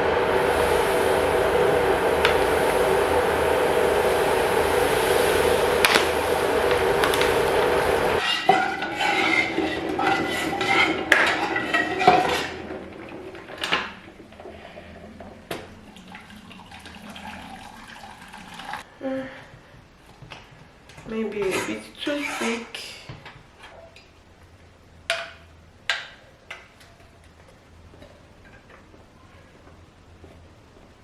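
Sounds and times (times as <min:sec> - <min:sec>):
kitchen appliance running: 0:00.0 - 0:18.9.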